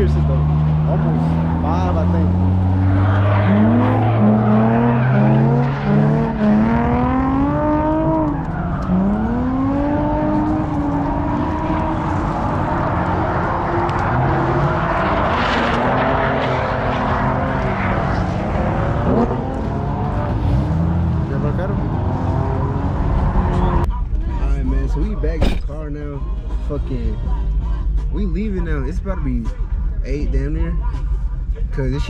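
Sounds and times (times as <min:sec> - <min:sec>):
low engine drone: 0:00.0 - 0:24.1
car engines revving: 0:00.0 - 0:32.0.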